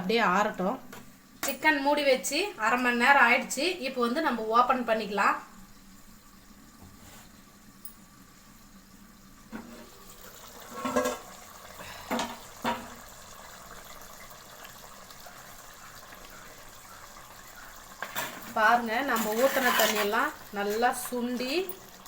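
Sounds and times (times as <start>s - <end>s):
pot simmering hiss: 0.0s - 22.0s.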